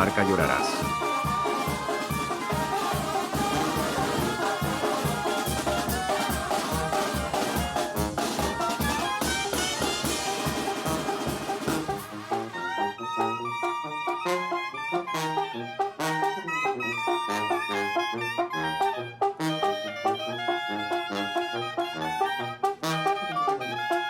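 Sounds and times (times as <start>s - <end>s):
drums with steady beat: 0.0s - 12.2s
brass band playing: 0.0s - 24.0s
trumpets and trombones: 0.0s - 24.0s.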